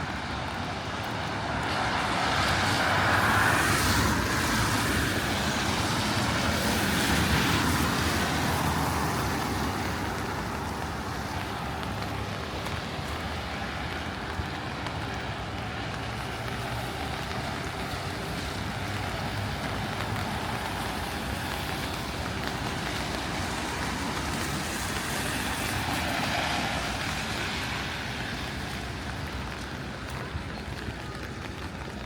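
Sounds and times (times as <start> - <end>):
traffic on wet street: 0.0 - 32.0
vehicle passing: 1.7 - 12.0.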